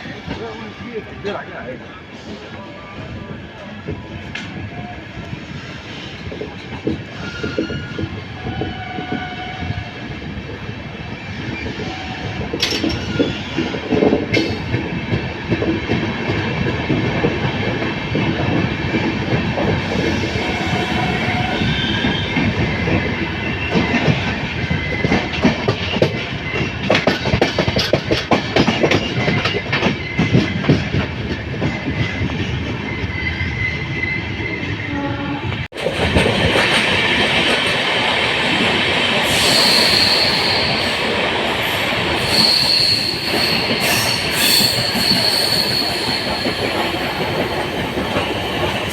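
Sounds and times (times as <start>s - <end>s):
train wheels clattering over rail joints: 21.1s - 32.6s
high-pitched wheel squeals: 39.3s - 41.0s, 41.6s - 47.8s.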